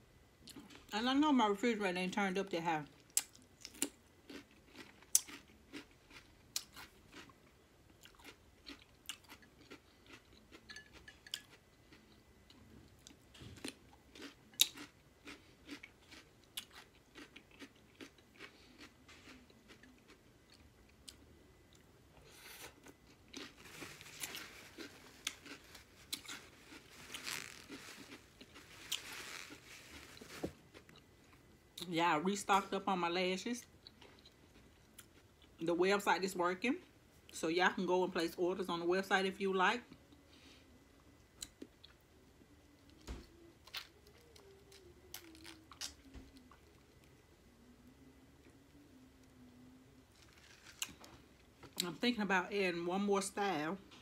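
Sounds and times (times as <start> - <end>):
crunching and chewing cucumber: 3.0 - 31.0, 43.6 - 46.6, 50.1 - 51.8
paper towel rustling: 23.6 - 30.6.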